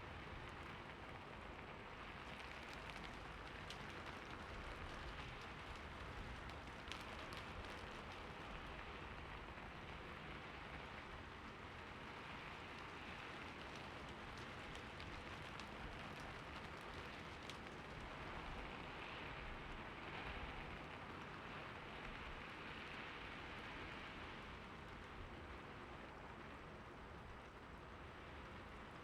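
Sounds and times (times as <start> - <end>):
soft steady rain: 0.0 - 29.0
raindrops ticking: 2.2 - 8.6, 12.7 - 18.2.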